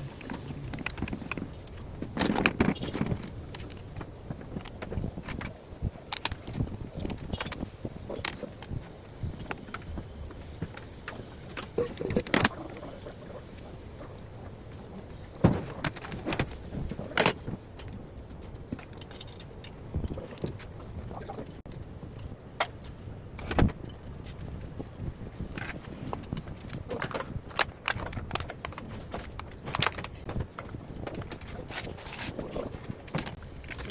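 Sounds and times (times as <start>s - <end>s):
metal tools clinking and knocking: 0.1s - 3.8s, 15.1s - 18.0s, 18.7s - 20.6s.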